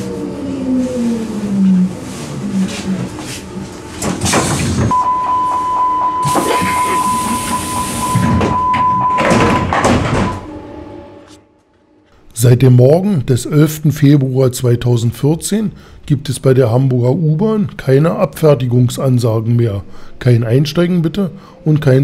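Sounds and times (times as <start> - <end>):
train motor whine: 0.0 - 12.2
sliding doors knocking: 4.0 - 6.8, 7.6 - 10.5
high warning tone: 4.9 - 11.4
doors thudding: 8.1 - 10.5.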